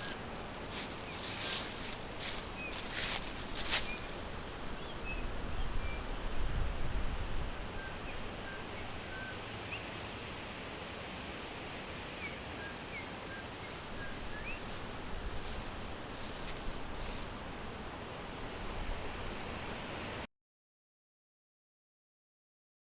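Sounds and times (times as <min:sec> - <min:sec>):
small birds chirping: 0:00.0 - 0:05.3, 0:12.0 - 0:17.4
background hiss: 0:00.0 - 0:05.9.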